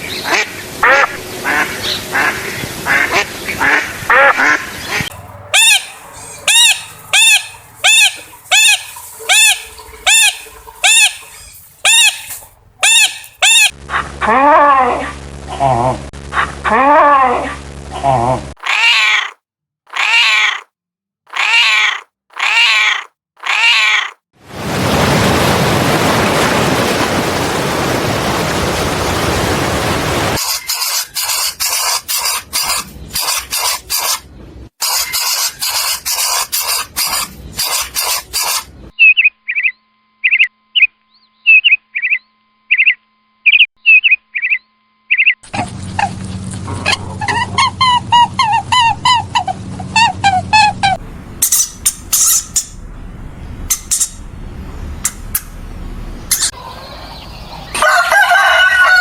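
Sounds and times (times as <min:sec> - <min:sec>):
animal hissing: 0:30.4 - 0:34.2.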